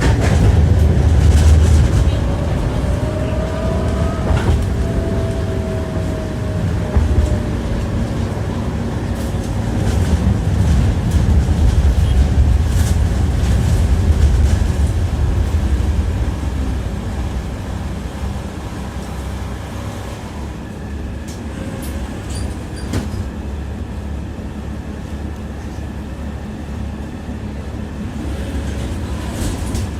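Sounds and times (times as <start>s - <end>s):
wheels clacking over rail joints: 0.0s - 18.4s, 28.3s - 29.9s
tram rumbling on rails: 0.0s - 29.9s.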